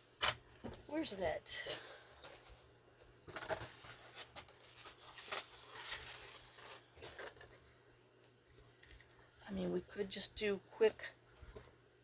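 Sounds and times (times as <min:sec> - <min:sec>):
paper rustling and scraping: 0:02.0 - 0:07.7.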